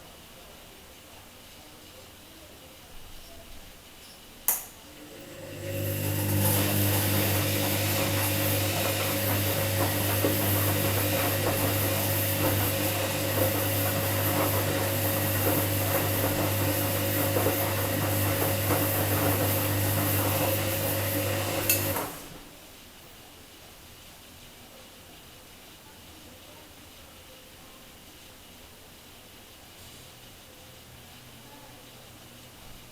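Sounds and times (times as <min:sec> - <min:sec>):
washing machine humming: 0:04.8 - 0:24.0.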